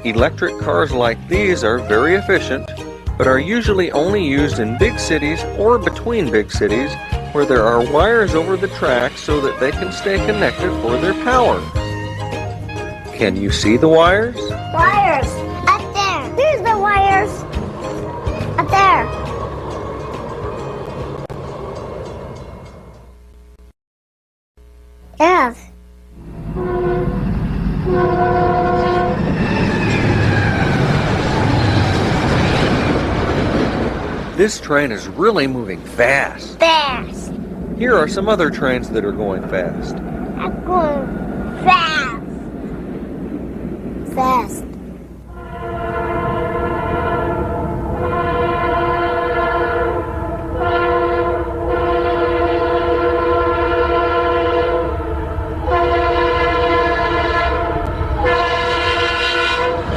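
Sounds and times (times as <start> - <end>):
train rumble and wheel clatter: 0.0 - 23.2, 26.2 - 59.9
train air horn: 8.9 - 11.7, 26.2 - 30.8, 45.3 - 59.9.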